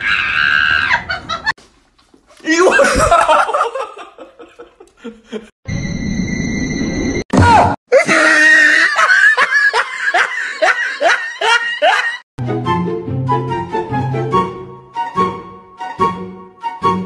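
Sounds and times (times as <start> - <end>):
comedy cries: 7.9 - 12.2
background music with held notes: 12.4 - 17.0.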